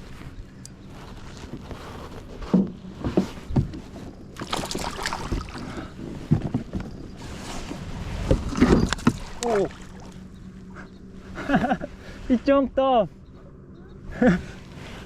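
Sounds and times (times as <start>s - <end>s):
water splashing around kayak: 0.0s - 10.5s.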